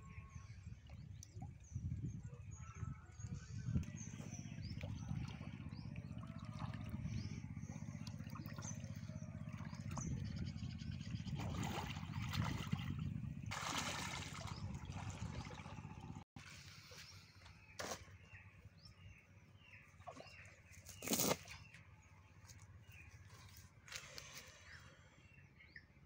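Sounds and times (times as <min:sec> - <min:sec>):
low hum: 0:00.0 - 0:19.9
water trickling and splashing: 0:04.7 - 0:17.1.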